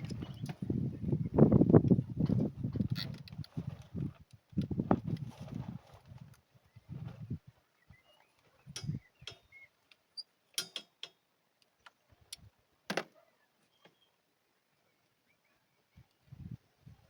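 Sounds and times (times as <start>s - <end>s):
irregular clicks and knocks: 8.7s - 11.2s.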